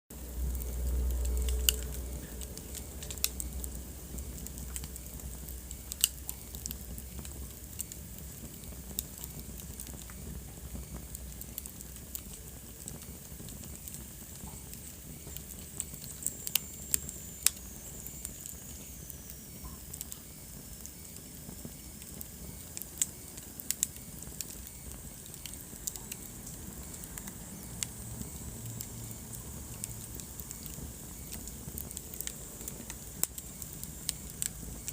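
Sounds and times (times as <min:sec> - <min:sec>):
low rumble of flame: 0:00.1 - 0:34.9
wood fire crackling: 0:00.1 - 0:34.9
faint high whistle: 0:14.5 - 0:29.3.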